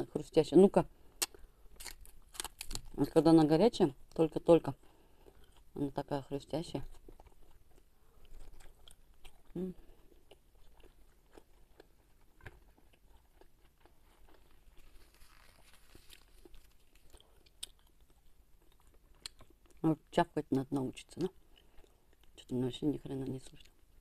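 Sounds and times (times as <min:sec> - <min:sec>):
faint chewing crunches: 0:01.0 - 0:03.2, 0:04.8 - 0:20.1, 0:20.7 - 0:24.0.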